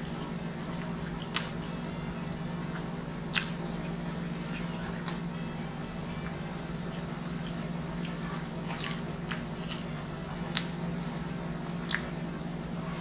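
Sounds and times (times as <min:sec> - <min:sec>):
wet chewing and mouth smacks: 0:00.0 - 0:01.7, 0:02.7 - 0:10.8, 0:11.8 - 0:12.2
steady low hum: 0:00.0 - 0:13.0.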